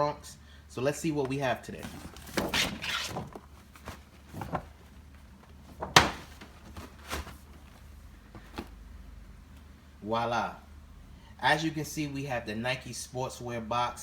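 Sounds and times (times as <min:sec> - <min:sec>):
packaging rustling: 0:01.7 - 0:08.8
cardboard knocks: 0:05.8 - 0:07.4.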